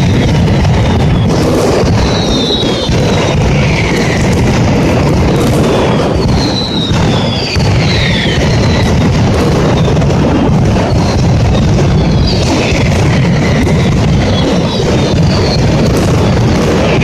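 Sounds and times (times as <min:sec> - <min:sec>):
firecrackers banging: 0:00.0 - 0:17.0
whistles falling in pitch: 0:01.1 - 0:04.2, 0:05.7 - 0:09.0.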